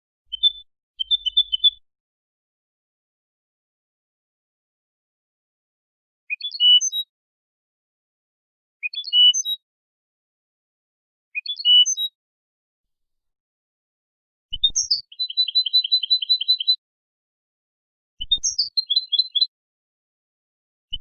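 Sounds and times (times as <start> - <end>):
goldfinch twittering song: 0.3 - 1.8, 11.4 - 12.2, 14.5 - 16.8, 18.2 - 19.5.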